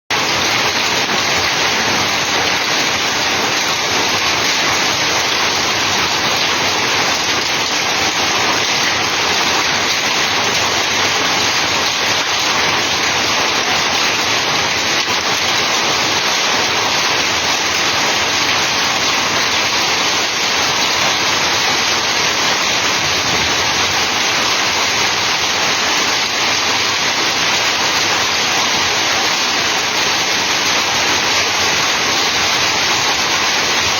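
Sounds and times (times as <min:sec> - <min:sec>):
hail and rain pelting down: 0:00.1 - 0:33.9.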